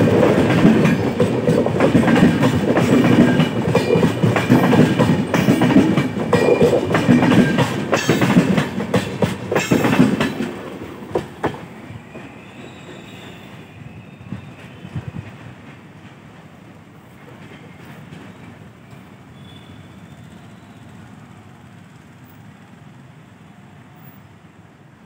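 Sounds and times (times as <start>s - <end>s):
wheels clattering over rail joints: 0.0s - 11.7s
faint train rumble: 0.0s - 25.0s.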